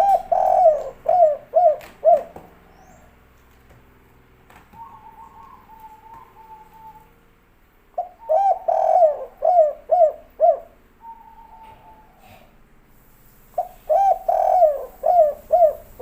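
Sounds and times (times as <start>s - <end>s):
dove cooing: 0.0s - 3.2s, 4.7s - 7.2s, 8.0s - 12.6s, 13.6s - 16.0s.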